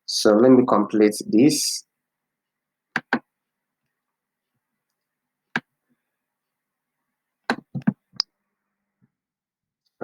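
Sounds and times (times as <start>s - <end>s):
computer mouse clicking: 3.0s - 3.2s.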